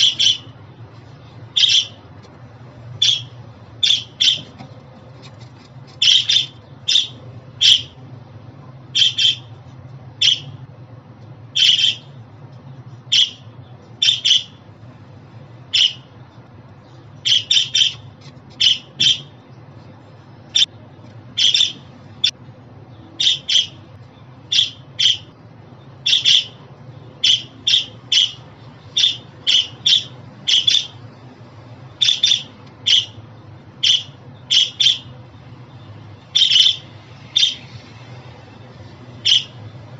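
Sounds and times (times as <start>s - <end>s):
budgerigar chirping: 0.0s - 0.6s, 1.5s - 2.0s, 3.0s - 4.6s, 6.0s - 8.0s, 9.0s - 9.5s, 10.2s - 10.6s, 11.6s - 12.1s, 13.1s - 14.6s, 15.7s - 16.1s, 17.2s - 19.4s, 21.4s - 22.3s, 23.2s - 23.9s, 24.5s - 25.3s, 26.0s - 26.6s, 27.2s - 31.0s, 32.0s - 33.2s, 33.8s - 35.2s, 36.3s - 37.7s, 39.2s - 39.6s.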